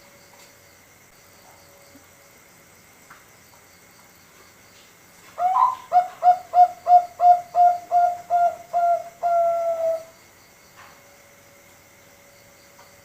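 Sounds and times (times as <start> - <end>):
dove cooing: 5.4 - 10.1.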